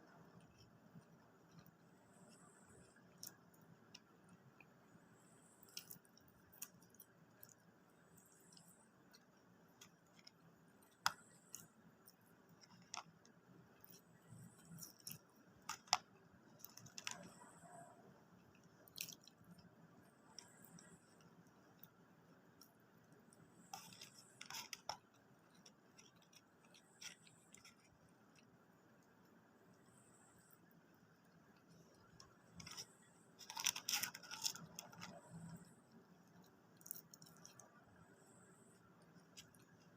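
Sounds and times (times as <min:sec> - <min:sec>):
person chewing food: 0:05.6 - 0:13.2, 0:13.8 - 0:29.1.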